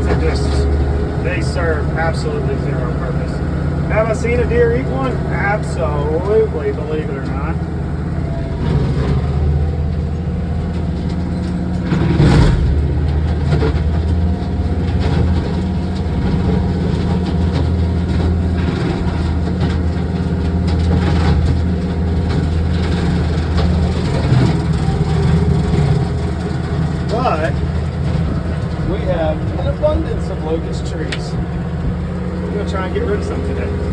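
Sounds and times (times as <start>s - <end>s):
tractor engine under load: 0.0s - 33.9s
trees cracking: 0.0s - 33.9s.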